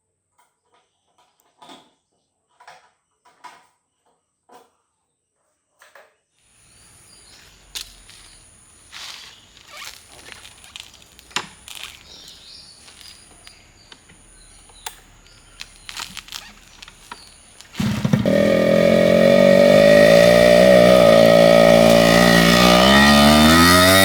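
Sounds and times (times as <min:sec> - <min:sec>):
outdoor background noise: 0:05.8 - 0:24.0.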